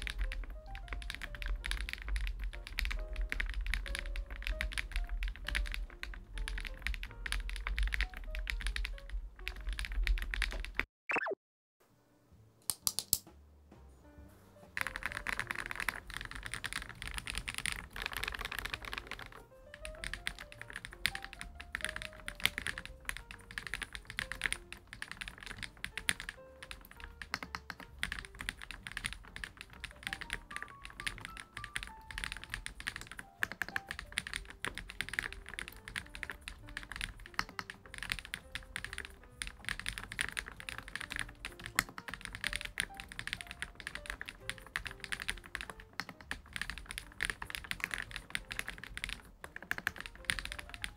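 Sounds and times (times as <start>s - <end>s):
soft background music: 0.0s - 10.8s, 11.8s - 50.9s
mechanical keyboard typing: 0.0s - 11.3s, 14.8s - 50.9s.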